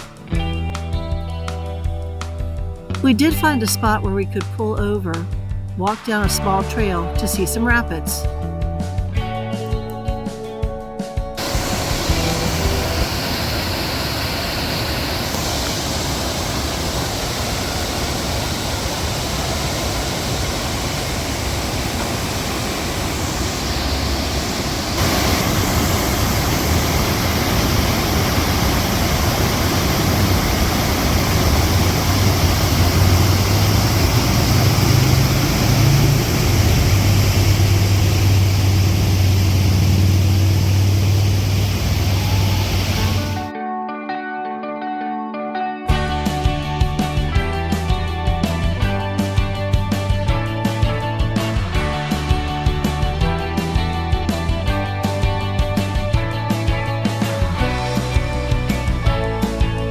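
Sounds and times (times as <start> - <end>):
river rapids rushing: 11.4 - 43.5.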